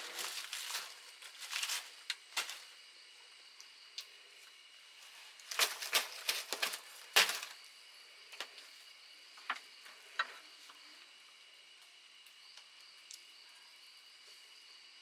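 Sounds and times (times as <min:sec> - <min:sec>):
sharp cracks and snaps: 0:05.4 - 0:07.6.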